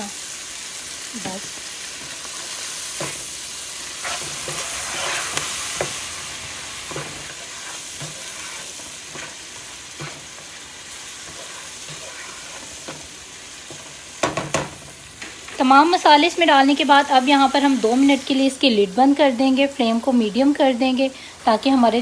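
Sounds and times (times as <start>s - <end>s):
food sizzling in oil: 0.0s - 22.0s
spoon scraping and knocking pan: 4.0s - 6.1s, 6.8s - 15.6s.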